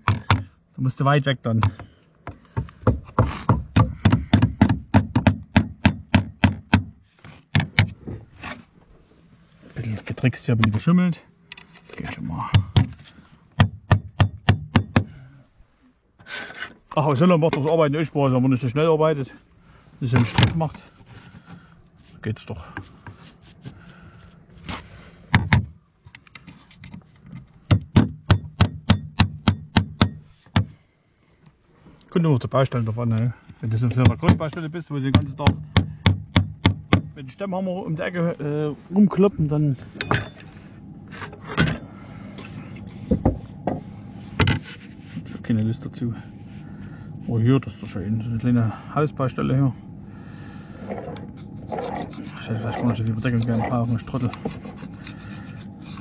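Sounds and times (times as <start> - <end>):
hammer driving nails: 1.6 - 6.9, 13.6 - 15.2, 27.6 - 30.7.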